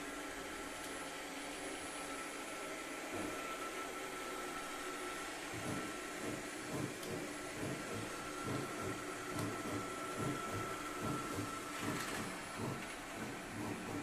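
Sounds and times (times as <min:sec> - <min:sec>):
robot vacuum running: 0:00.0 - 0:14.0.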